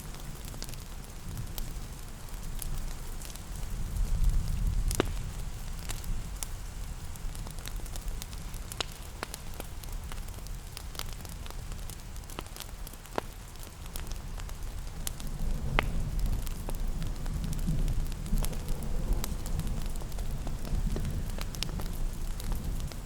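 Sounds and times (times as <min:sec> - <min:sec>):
wood fire crackling: 0:00.0 - 0:23.0
rain hissing: 0:14.2 - 0:23.0.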